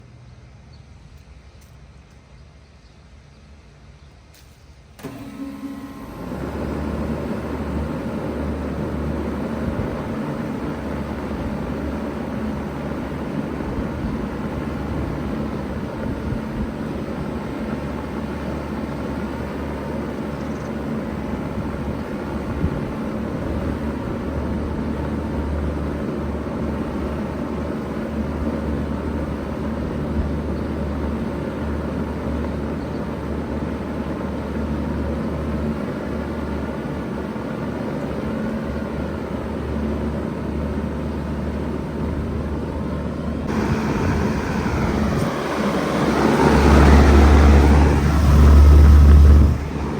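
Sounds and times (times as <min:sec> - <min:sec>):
heat pump humming: 0:05.0 - 0:49.9
rush of air: 0:43.5 - 0:49.9.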